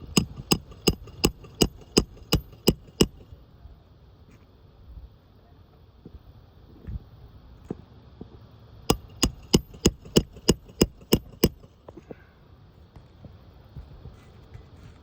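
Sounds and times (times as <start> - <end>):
hammer blows with metallic ring: 8.9 - 11.8.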